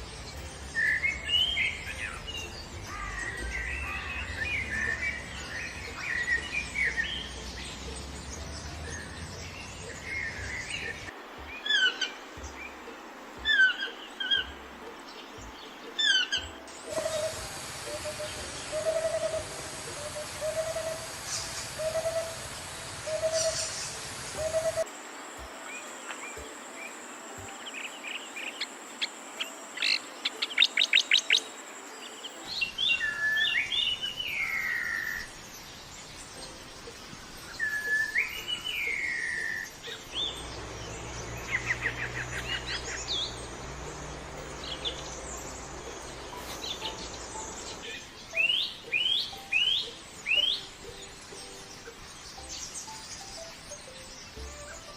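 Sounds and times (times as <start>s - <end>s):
forest background hiss: 0.0s - 54.9s
bird trills: 9.9s - 12.7s, 13.4s - 14.6s, 16.0s - 24.9s, 37.3s - 54.9s
whistled bird calls: 9.9s - 12.7s, 13.4s - 14.5s, 16.0s - 24.9s, 37.4s - 43.5s, 44.1s - 50.7s
bird chirps: 15.4s - 24.9s, 25.7s - 54.9s.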